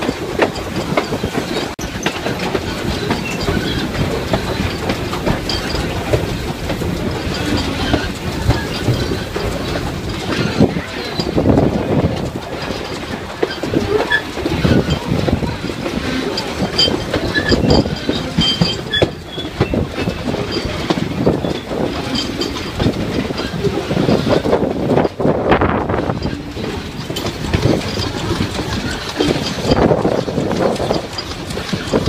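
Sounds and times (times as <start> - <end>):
train wheels clattering on rails: 0.0 - 32.0
train wheels squealing: 0.1 - 6.5, 13.4 - 15.2, 16.0 - 24.4.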